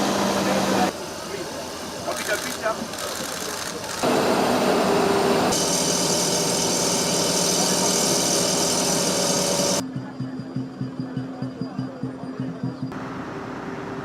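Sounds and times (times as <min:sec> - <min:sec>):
excavator diesel engine: 0:00.0 - 0:09.8.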